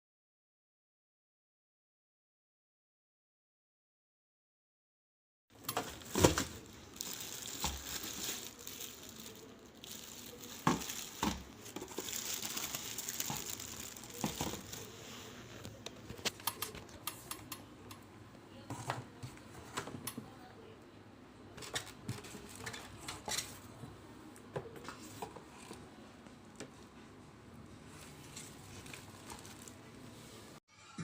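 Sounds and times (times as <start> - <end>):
plastic packaging crinkling: 5.6 - 16.3, 21.6 - 23.6, 28.0 - 30.5.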